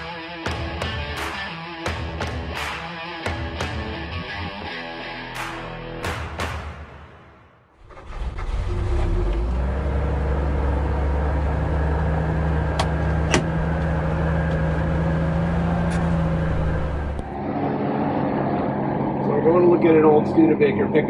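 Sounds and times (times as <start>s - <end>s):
vehicle engine running: 9.2s - 21.0s.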